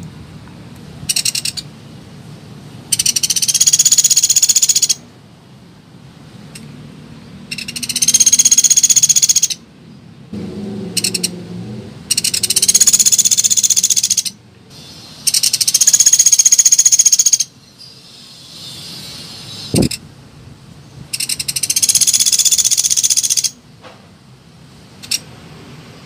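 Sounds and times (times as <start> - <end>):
woodpecker trilling call: 1.1 - 1.6, 2.9 - 5.0, 7.5 - 9.6, 11.0 - 11.3, 12.1 - 20.0, 21.1 - 23.6.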